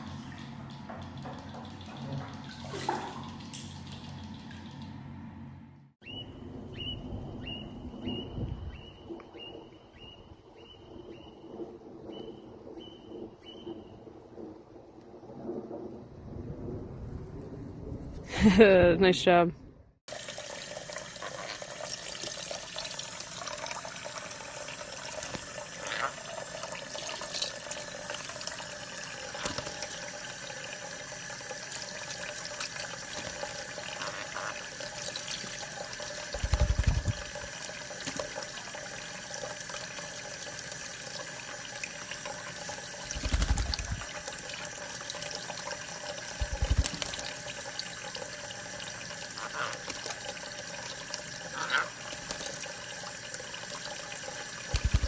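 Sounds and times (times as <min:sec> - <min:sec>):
running water: 0:20.1 - 0:55.0.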